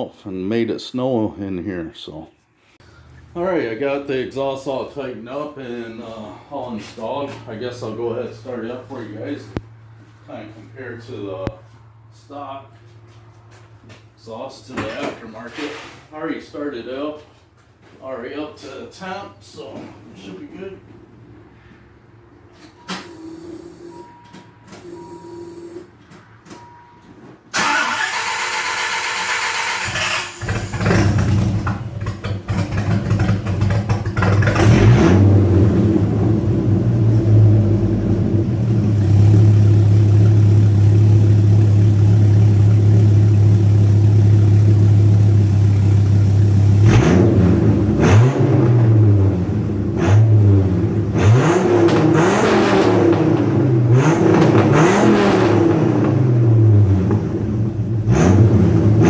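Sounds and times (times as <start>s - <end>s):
faint beeps: 22.6s - 25.9s, 26.5s - 27.2s
car engine idling and revving: 29.6s - 59.0s.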